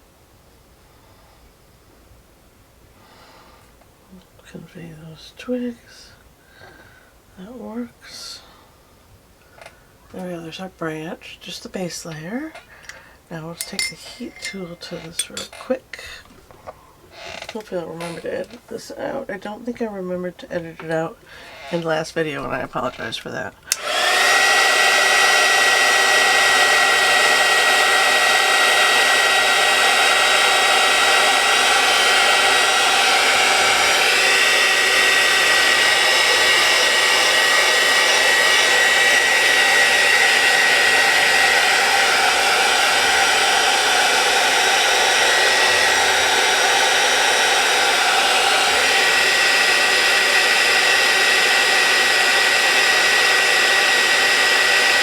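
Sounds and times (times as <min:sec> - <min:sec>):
heat tool blowing air: 0:12.1 - 0:19.6, 0:20.6 - 0:55.0.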